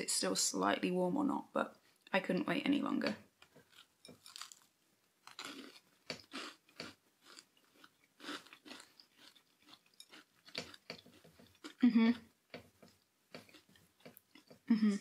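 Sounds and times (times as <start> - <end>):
person crunching a cookie: 3.5 - 11.8, 12.9 - 14.6.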